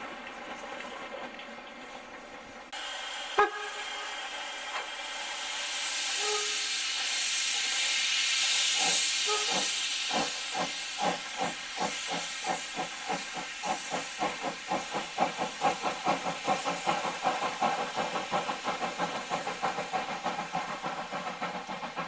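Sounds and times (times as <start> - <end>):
steam locomotive chuffing: 0.0 - 22.0
steam hiss: 2.6 - 22.0.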